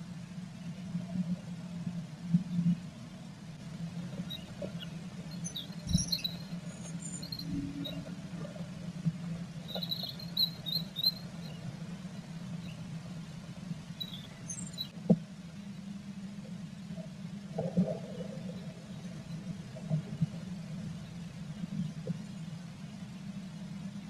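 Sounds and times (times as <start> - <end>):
steady low hum: 0.0 - 24.0
faint high chirps: 4.1 - 8.1, 9.6 - 11.7, 13.9 - 15.0.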